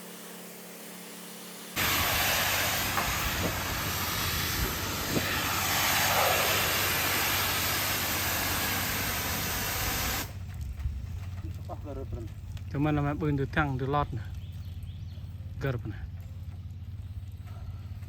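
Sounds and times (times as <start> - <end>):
pressure washer spraying water: 0.0 - 10.4
washer engine running: 1.8 - 10.5.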